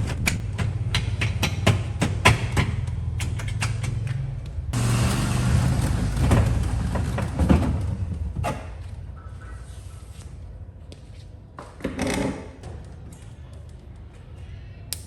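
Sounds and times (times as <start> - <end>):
sharp knocks and clicks: 0.0 - 4.2
motor humming: 4.8 - 8.2.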